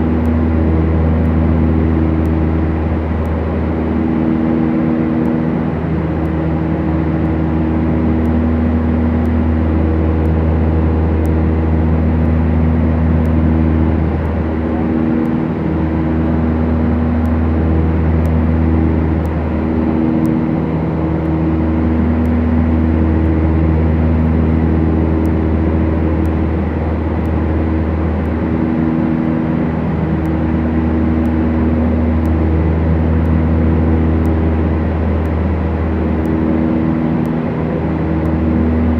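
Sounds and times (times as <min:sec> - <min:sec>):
propeller plane engines droning: 0:00.0 - 0:38.9.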